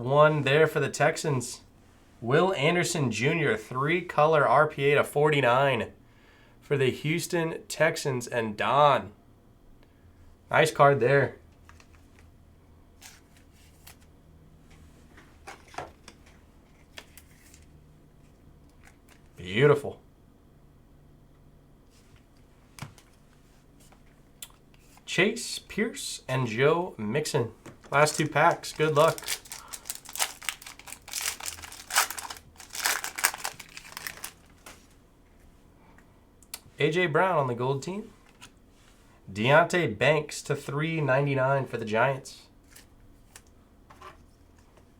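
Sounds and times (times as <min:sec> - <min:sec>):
trading cards rustling and tapping: 0:22.7 - 0:23.2, 0:27.7 - 0:35.0
wrapper tearing and crinkling: 0:27.9 - 0:34.9.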